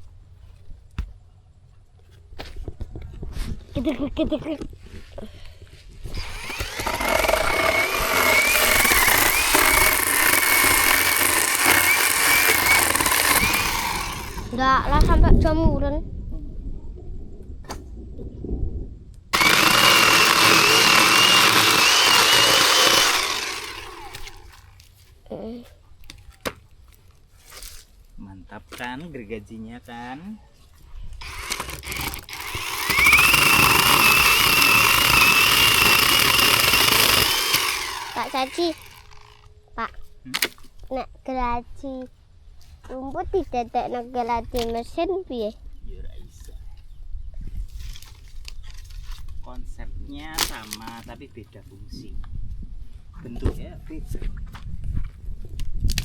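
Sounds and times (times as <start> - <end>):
cordless chainsaw running: 6.1 - 14.6, 19.4 - 24.8, 31.2 - 39.5.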